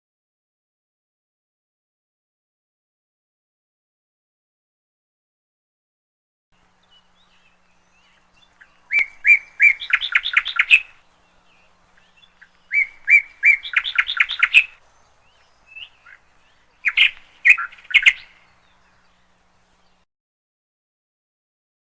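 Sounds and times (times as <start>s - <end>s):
songbird singing: 6.6s - 20.1s.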